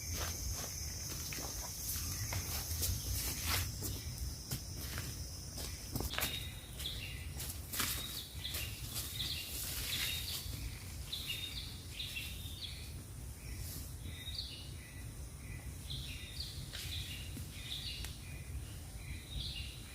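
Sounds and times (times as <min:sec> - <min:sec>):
birds chirping: 0:00.0 - 0:19.9.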